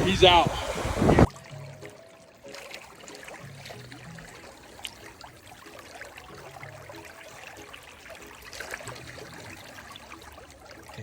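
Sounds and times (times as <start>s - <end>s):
river water trickling: 0.0s - 11.0s.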